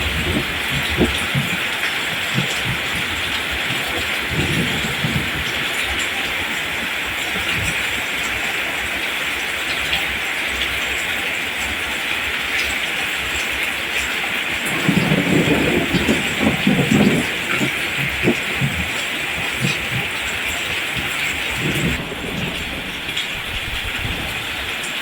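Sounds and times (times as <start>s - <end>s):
rain hissing: 0.0s - 25.0s.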